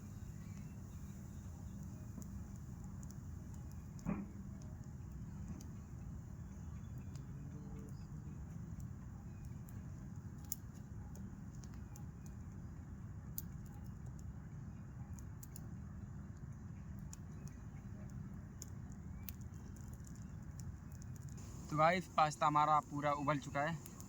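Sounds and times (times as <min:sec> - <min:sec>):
faint clicks and ticks: 0:00.0 - 0:14.4, 0:15.0 - 0:24.0
gas stove burner running: 0:21.4 - 0:24.0.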